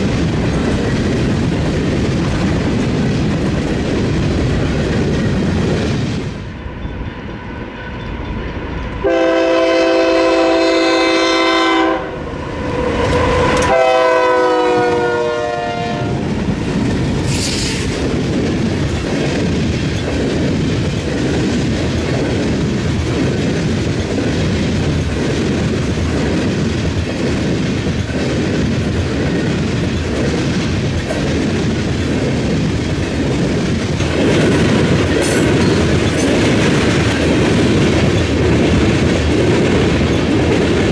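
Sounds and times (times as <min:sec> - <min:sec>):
train wheels clattering on rails: 0:00.0 - 0:11.0, 0:12.6 - 0:40.9
locomotive air horn blasts: 0:09.0 - 0:12.2, 0:13.2 - 0:16.2.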